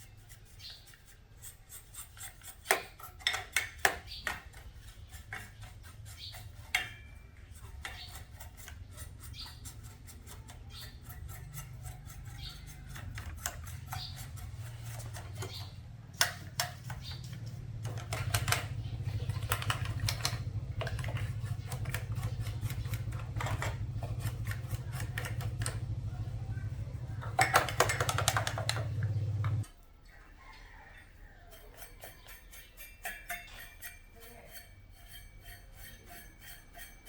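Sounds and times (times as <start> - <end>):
scraping: 0.0 - 29.8, 31.0 - 37.0
low electrical hum: 0.0 - 37.0
scattered clicks: 16.1 - 29.7.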